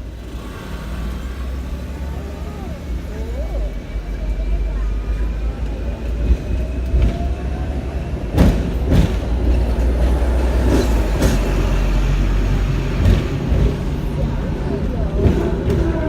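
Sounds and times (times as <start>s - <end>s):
tram rumbling: 0.0s - 16.0s
wheels clacking over rail joints: 4.3s - 16.0s.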